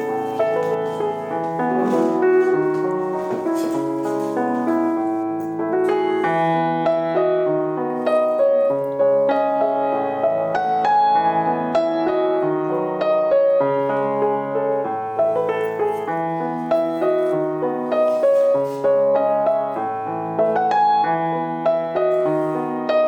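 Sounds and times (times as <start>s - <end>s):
soft piano music: 0.0s - 23.0s.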